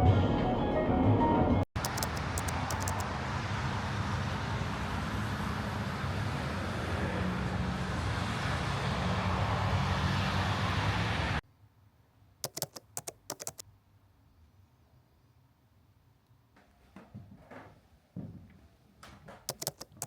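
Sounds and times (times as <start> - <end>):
light clicks: 1.8 - 3.0, 12.4 - 13.6, 19.5 - 20.0
vehicle running rumble and hiss: 1.8 - 11.4.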